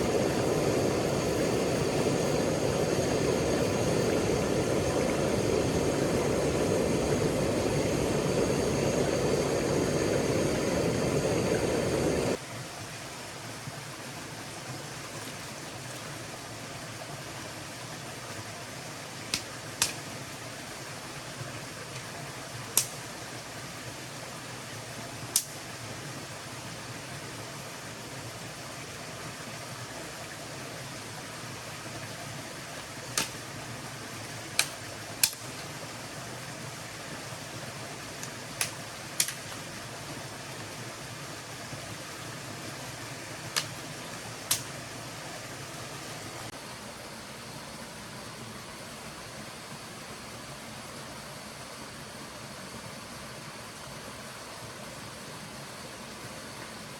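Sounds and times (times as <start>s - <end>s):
campfire crackling pops: 0.0s - 12.4s, 19.3s - 20.0s, 22.8s - 23.0s, 25.4s - 25.6s, 33.1s - 33.4s, 34.6s - 35.7s, 38.2s - 39.7s, 43.5s - 43.8s, 44.4s - 44.8s
steady hiss: 0.0s - 13.9s, 16.1s - 56.9s
stream water rushing: 0.0s - 50.6s.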